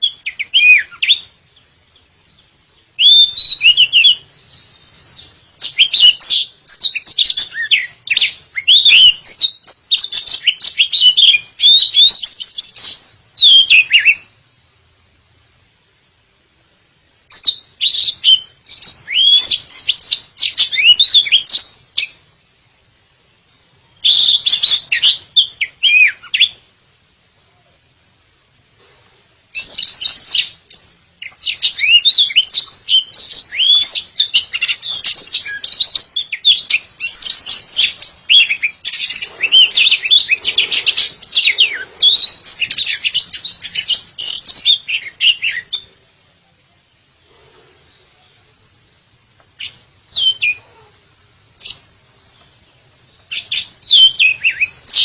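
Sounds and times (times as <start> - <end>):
songbird whistling and chirping: 0.0 - 14.4, 17.3 - 22.2, 23.5 - 26.6, 29.5 - 46.1, 49.6 - 50.8, 51.5 - 55.0.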